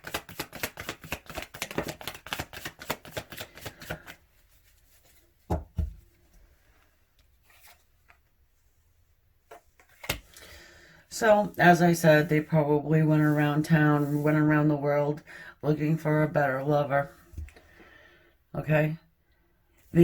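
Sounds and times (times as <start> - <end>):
cards being shuffled: 0.0 - 5.2, 9.5 - 10.4.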